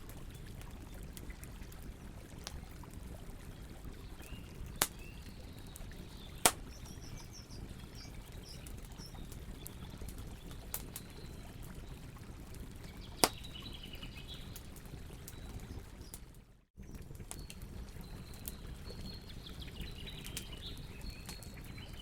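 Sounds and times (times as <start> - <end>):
campfire burning: 0.0 - 22.0
wood cracking pops: 4.8 - 5.0, 6.4 - 6.7, 13.2 - 13.4.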